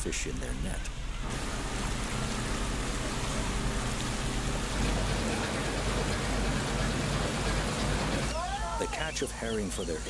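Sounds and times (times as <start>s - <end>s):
boat engine hum: 1.2s - 8.3s
rushing water hiss: 1.2s - 8.3s.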